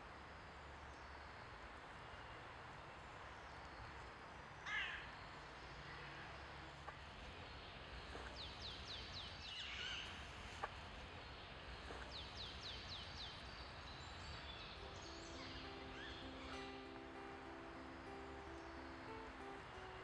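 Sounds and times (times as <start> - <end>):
songbird calling: 4.6 - 20.0
guitar music: 14.7 - 20.0.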